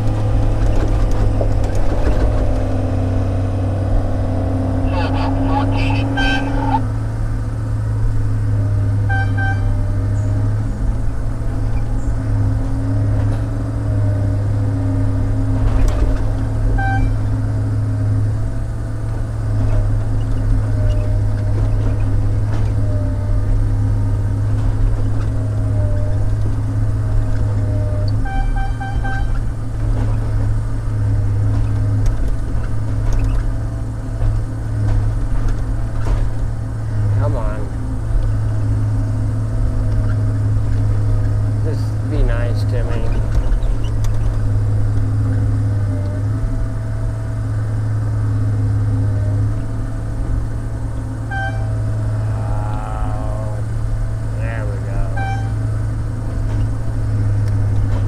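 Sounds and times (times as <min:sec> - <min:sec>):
diesel engine running: 0:00.0 - 0:58.0
short high squeaks: 0:05.8 - 0:06.9, 0:16.8 - 0:17.3, 0:27.9 - 0:29.6, 0:42.9 - 0:44.6, 0:51.2 - 0:52.0, 0:55.0 - 0:55.7.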